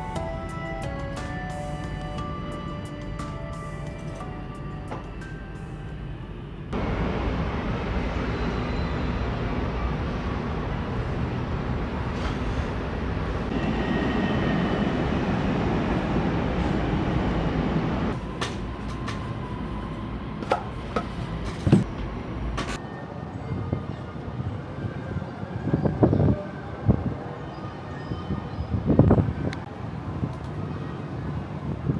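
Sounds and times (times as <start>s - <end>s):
low rumbling noise: 0.0s - 20.4s.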